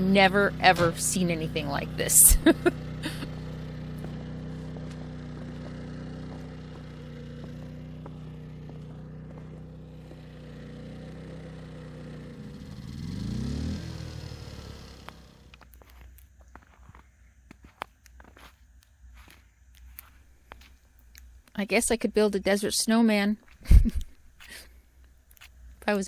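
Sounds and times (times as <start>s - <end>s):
engine running and revving: 0.0s - 15.6s.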